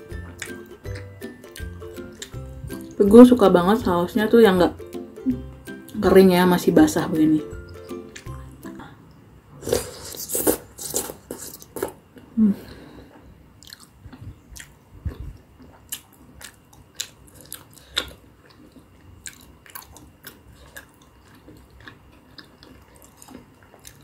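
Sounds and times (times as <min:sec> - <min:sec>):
chewing rice cakes: 0:00.2 - 0:02.4, 0:13.6 - 0:24.0.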